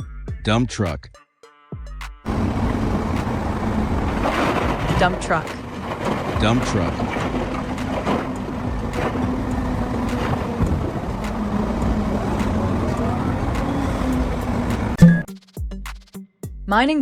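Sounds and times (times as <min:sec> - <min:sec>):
dump truck engine running: 0:02.3 - 0:15.0
knocks and clanks: 0:03.1 - 0:12.9.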